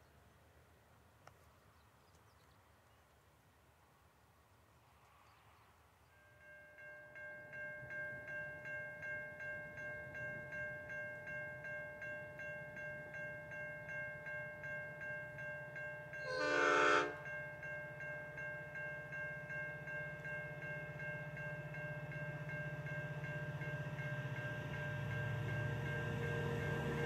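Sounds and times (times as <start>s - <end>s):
locomotive horn blast: 16.2s - 17.3s
train rumble: 19.4s - 27.0s.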